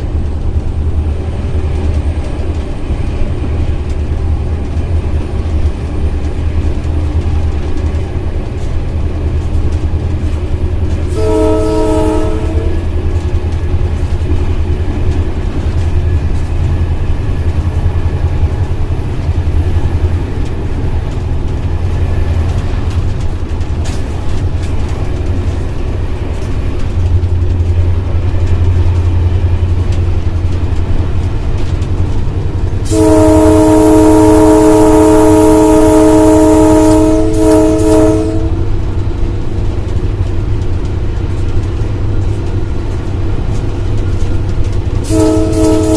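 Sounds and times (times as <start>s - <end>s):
locomotive engine drone: 0.0s - 45.9s
locomotive air horn blast: 11.1s - 12.9s, 32.8s - 38.7s, 45.0s - 45.9s.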